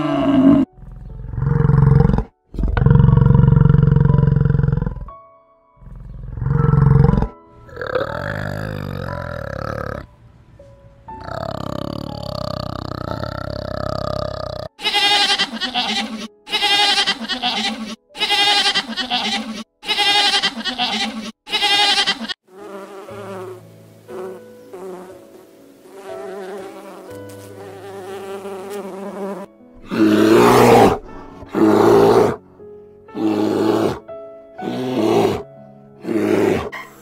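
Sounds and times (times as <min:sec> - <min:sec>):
bear growling: 0:00.0 - 0:05.1, 0:05.8 - 0:10.1, 0:11.2 - 0:14.8, 0:29.8 - 0:32.4, 0:33.1 - 0:37.0
goat bleating: 0:14.8 - 0:22.4
bees buzzing: 0:22.5 - 0:30.7.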